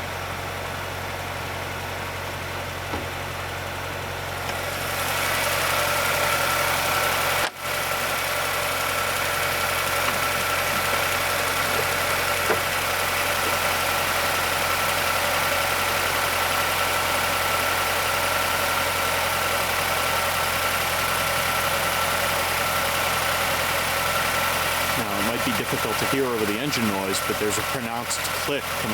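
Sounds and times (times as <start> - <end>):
car engine idling: 0.0 - 28.9
engine ticking click: 4.4 - 4.6, 7.3 - 7.6, 9.1 - 16.2, 24.9 - 28.9.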